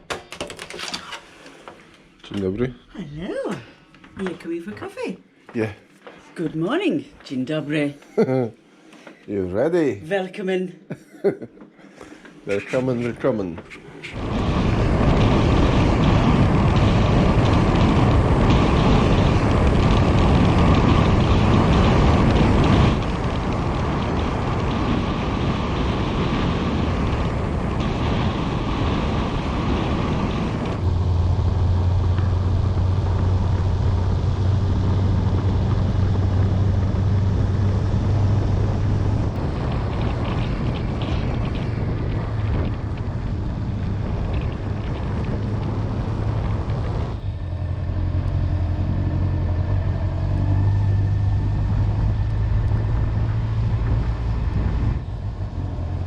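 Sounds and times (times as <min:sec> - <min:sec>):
wind and road noise: 0:12.0 - 0:56.0
motorcycle engine hum: 0:12.5 - 0:56.0.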